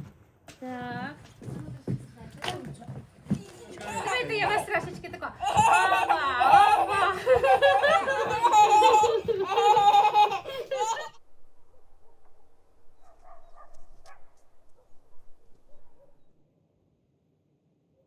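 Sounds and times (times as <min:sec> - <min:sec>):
small children laughing and squealing: 0:03.8 - 0:04.7, 0:05.4 - 0:11.2.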